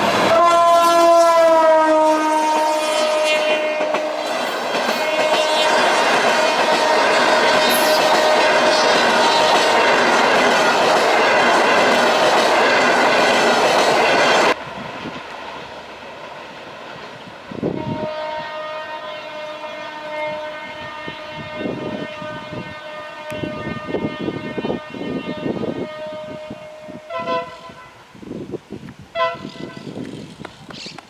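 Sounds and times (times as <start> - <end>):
train coaches rushing past: 0.0 - 22.6
locomotive horn blast: 0.2 - 4.3, 4.9 - 9.6, 17.6 - 28.1, 29.1 - 30.0.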